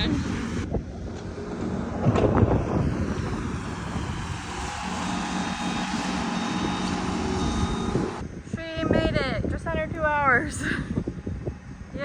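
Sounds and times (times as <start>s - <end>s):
tractor engine running: 0.0s - 8.2s.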